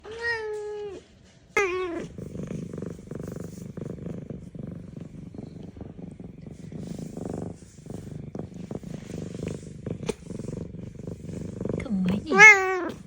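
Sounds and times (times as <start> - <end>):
cat purring: 0.8 - 13.0
cat meowing: 1.6 - 2.1, 12.2 - 13.0.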